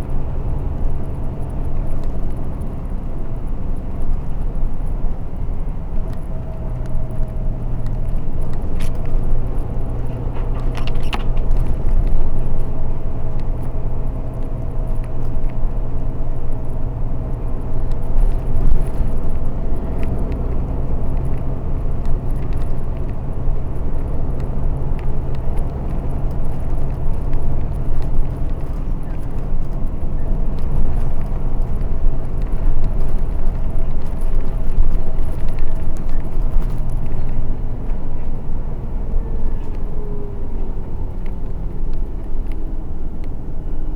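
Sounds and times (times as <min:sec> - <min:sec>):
light rattles: 0:00.0 - 0:38.6
bus engine hum: 0:00.0 - 0:43.9
road noise: 0:00.0 - 0:43.9.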